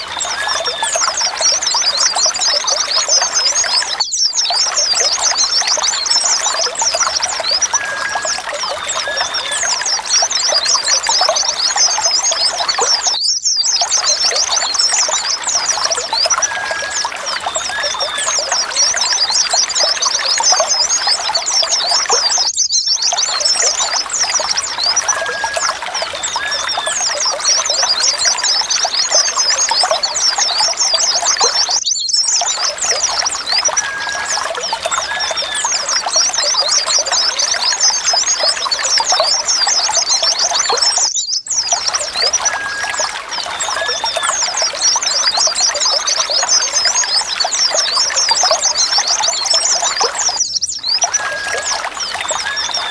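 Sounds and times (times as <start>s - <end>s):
flock of birds chirping: 0.0s - 52.9s
short bird whistle: 40.6s - 43.0s.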